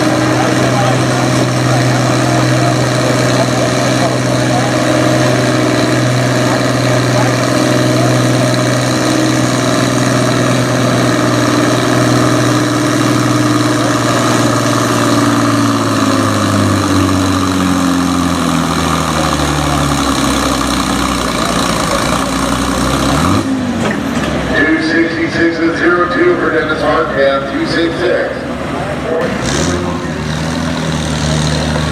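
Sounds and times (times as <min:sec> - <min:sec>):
tractor diesel engine at high revs: 0:00.0 - 0:31.9.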